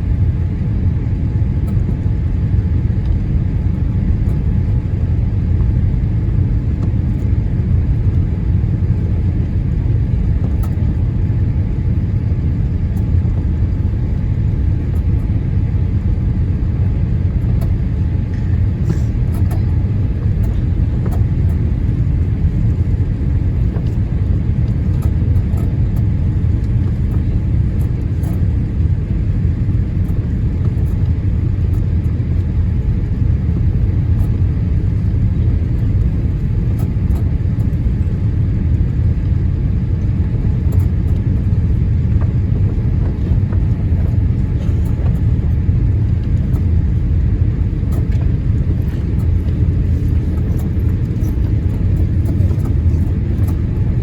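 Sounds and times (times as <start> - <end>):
aircraft cabin rumble: 0.0 - 54.0.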